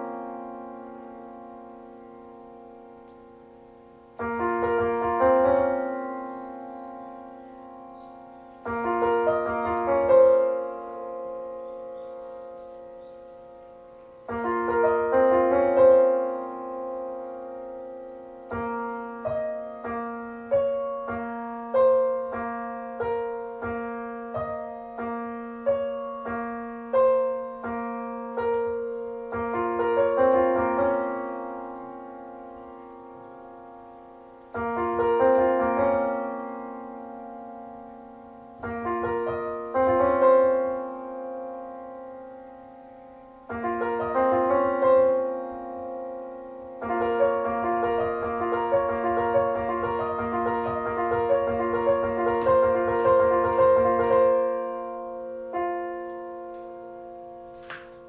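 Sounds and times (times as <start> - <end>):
gentle solo piano: 0.0 - 58.0.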